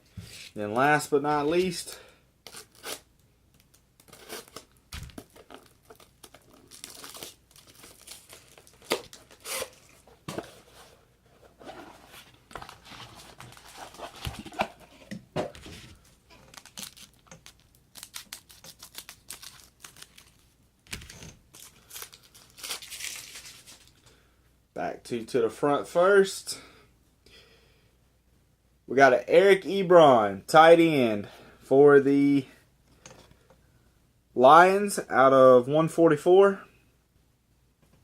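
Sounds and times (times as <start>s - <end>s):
wrapper tearing and crinkling: 3.6s - 10.0s, 16.4s - 20.5s, 21.5s - 23.9s
cards rustling: 11.7s - 15.0s, 15.6s - 24.0s.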